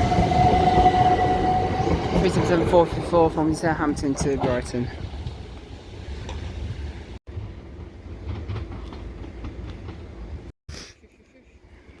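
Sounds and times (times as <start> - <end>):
electric train rumbling: 0.0 - 10.5
wheels clicking over rail joints: 1.5 - 10.5.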